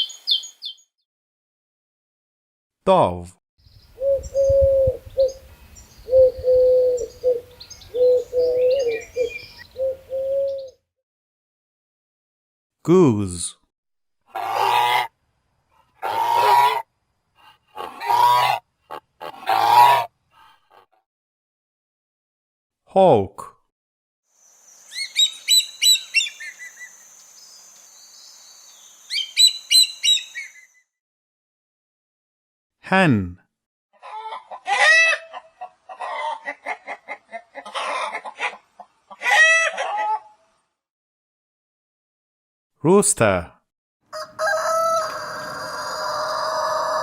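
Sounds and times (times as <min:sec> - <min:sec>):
faint high bird chirps: 0:00.0 - 0:00.9, 0:03.6 - 0:10.8, 0:24.4 - 0:30.9
dove cooing: 0:04.0 - 0:05.4, 0:06.0 - 0:10.8.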